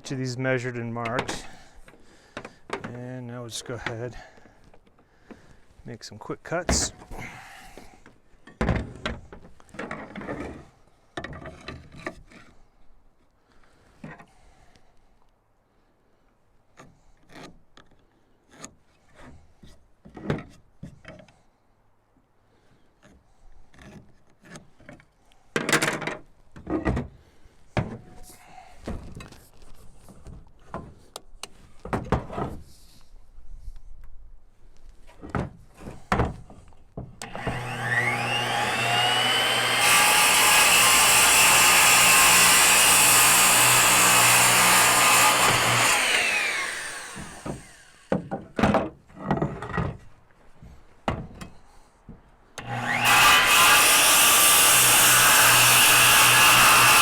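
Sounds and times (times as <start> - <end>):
wooden knocks and clatters: 35.1 - 37.2, 47.3 - 52.2.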